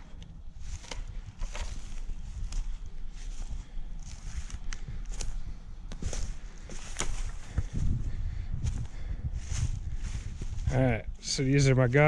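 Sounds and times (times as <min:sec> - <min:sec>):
footsteps through leaves: 0:00.6 - 0:07.8, 0:09.4 - 0:10.8.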